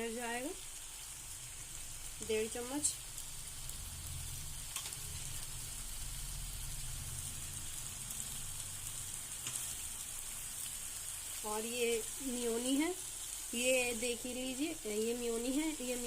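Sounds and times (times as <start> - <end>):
pasta sizzling in a pan: 0.0 - 16.0.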